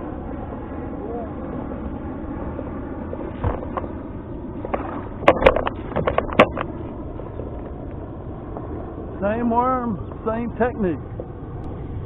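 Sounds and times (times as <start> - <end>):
sharp clicks and knocks: 4.7 - 6.8.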